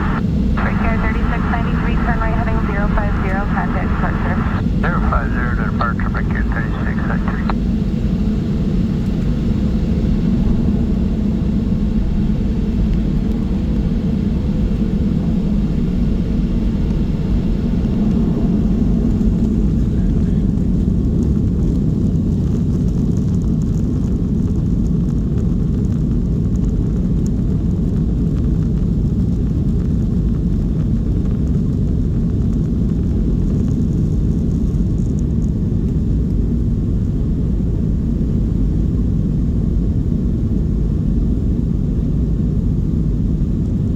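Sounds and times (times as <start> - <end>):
airplane cabin engine rumble: 0.0 - 7.6.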